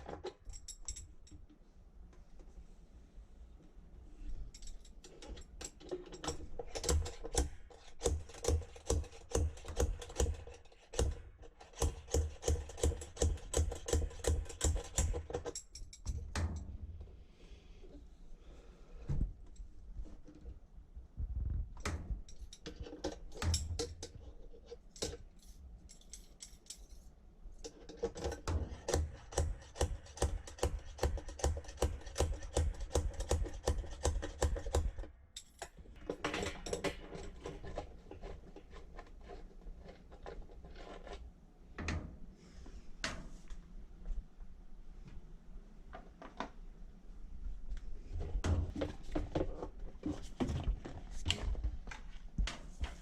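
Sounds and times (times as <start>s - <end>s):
metal tools clinking and knocking: 0.2s - 1.5s, 24.9s - 27.1s.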